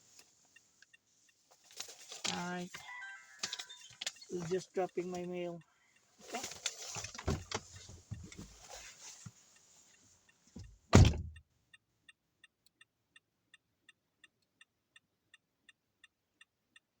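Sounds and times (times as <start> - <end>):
turn signal ticking: 3.9 - 6.2, 7.5 - 17.0
car door shutting: 7.0 - 8.6, 10.6 - 11.4.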